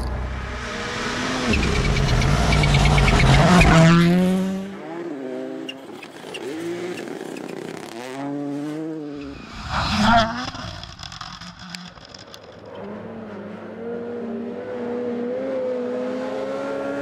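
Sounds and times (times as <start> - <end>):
car engine revving at full throttle: 0.0 - 5.6, 12.8 - 17.0.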